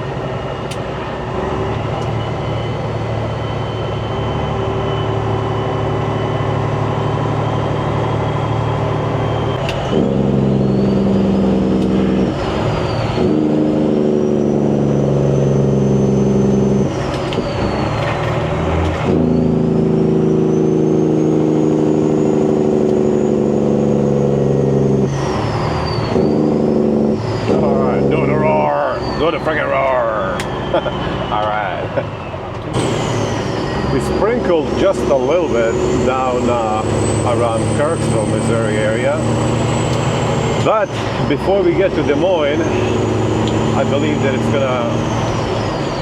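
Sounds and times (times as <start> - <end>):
truck diesel engine upshifting: 0.0 - 46.0
turbo whistle: 1.6 - 6.5, 9.2 - 18.0, 25.1 - 46.0.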